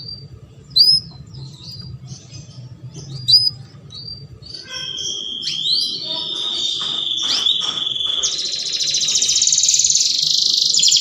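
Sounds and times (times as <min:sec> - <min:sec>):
low steady hum: 0:00.0 - 0:05.8
canary chirping: 0:00.0 - 0:11.0.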